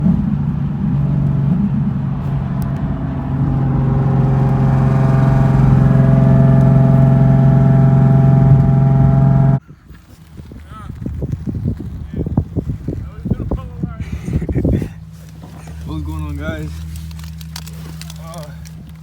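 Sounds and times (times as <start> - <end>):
car engine droning: 0.0 - 9.6.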